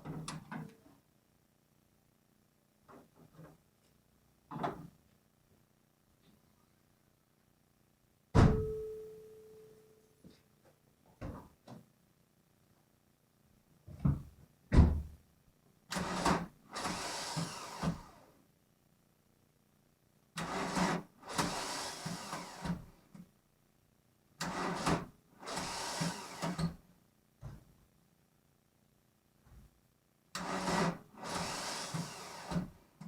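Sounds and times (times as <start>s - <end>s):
starter motor cranking engine: 30.4s - 32.7s.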